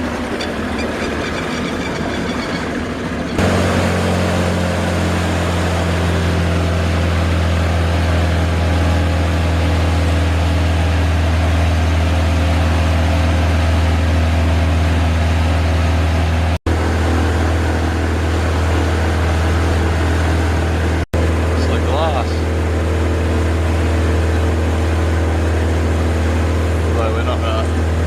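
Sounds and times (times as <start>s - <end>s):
boat engine humming: 0.0s - 28.0s.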